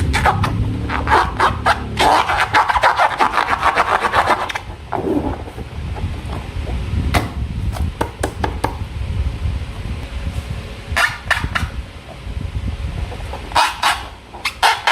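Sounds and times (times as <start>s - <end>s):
rubbing strokes: 0.0s - 5.7s
steady low hum: 0.0s - 14.9s.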